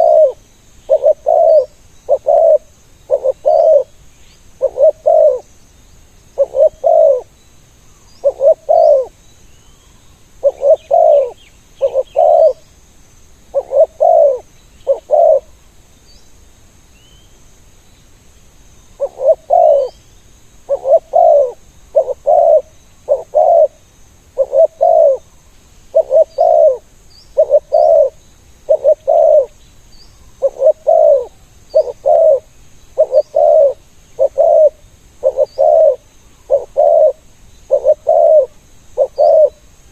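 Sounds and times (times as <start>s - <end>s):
doves cooing: 0.0s - 3.9s, 4.6s - 5.5s, 6.4s - 7.3s, 8.2s - 9.1s, 10.4s - 12.6s, 13.5s - 15.5s, 19.0s - 20.0s, 20.7s - 23.8s, 24.4s - 25.3s, 25.9s - 29.6s, 30.4s - 39.6s
small birds chirping: 0.0s - 39.9s.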